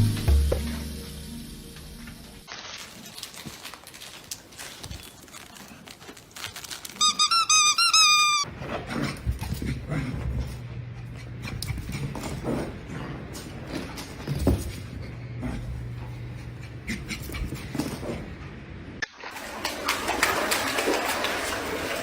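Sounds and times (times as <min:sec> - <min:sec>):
high-pitched squeaks: 0:06.9 - 0:08.5.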